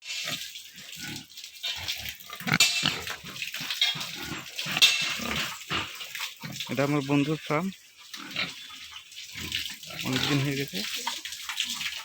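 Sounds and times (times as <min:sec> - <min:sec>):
pigs grunting: 0:00.2 - 0:07.5, 0:08.2 - 0:10.9.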